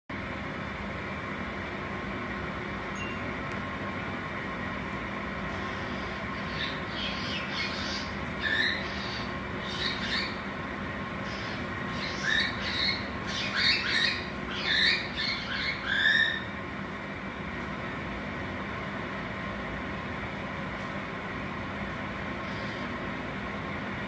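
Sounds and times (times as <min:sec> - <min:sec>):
steady background hum: 0:00.1 - 0:24.0
cockatiel squawks and chirps: 0:06.5 - 0:10.4, 0:11.3 - 0:16.5.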